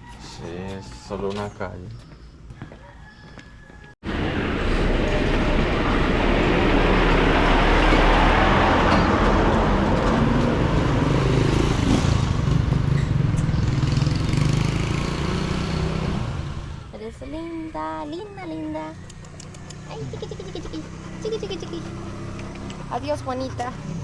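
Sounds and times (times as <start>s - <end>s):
road noise: 0.0s - 24.0s
vehicle engine running loudly: 4.1s - 16.9s, 19.0s - 24.0s.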